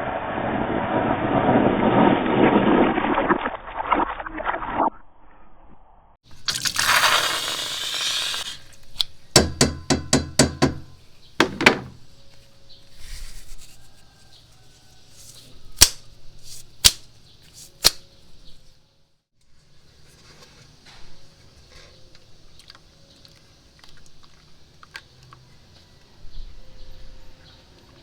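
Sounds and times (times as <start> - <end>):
squelchy slime hiss: 6.5 - 8.9.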